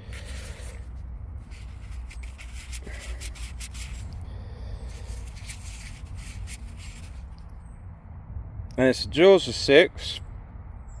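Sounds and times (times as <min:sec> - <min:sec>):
fingers rubbing soil off coin: 0:00.0 - 0:04.2, 0:04.8 - 0:07.4.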